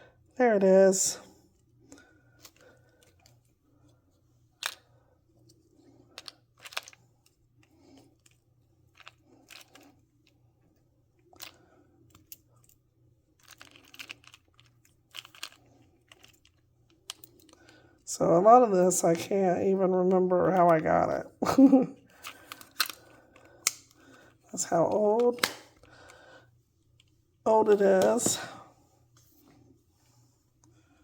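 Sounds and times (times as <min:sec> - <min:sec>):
plastic pieces clicking: 0:06.2 - 0:07.0, 0:13.4 - 0:17.8, 0:22.2 - 0:24.0.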